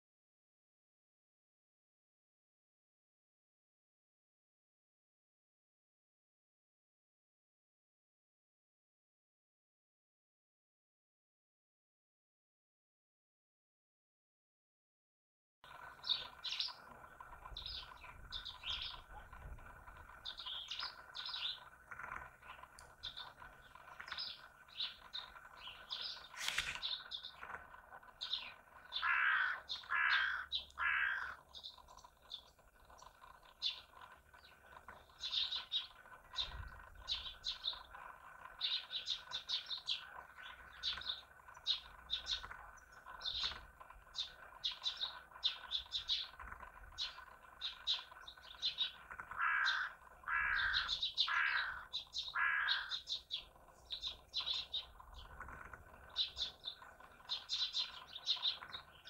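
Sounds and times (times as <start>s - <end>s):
songbirds chirping: 15.6s - 59.0s
downward-sliding bird calls: 15.7s - 59.0s.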